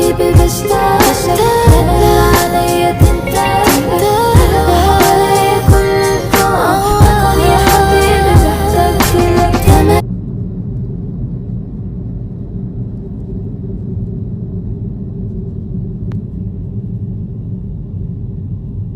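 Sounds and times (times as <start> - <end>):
background music: 0.0 - 10.0
low rumble with faint hum: 5.6 - 18.9.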